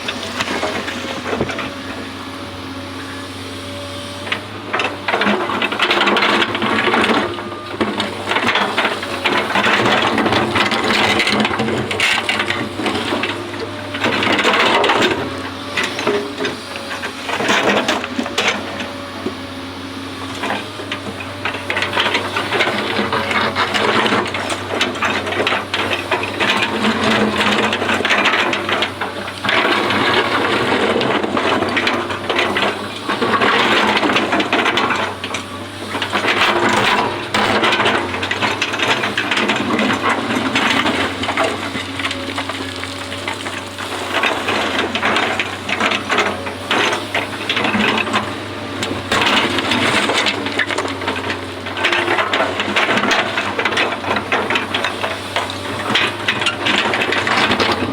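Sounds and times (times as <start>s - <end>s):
crackling and scraping: 0.0s - 2.0s, 20.3s - 57.9s
excavator engine humming: 0.0s - 57.9s.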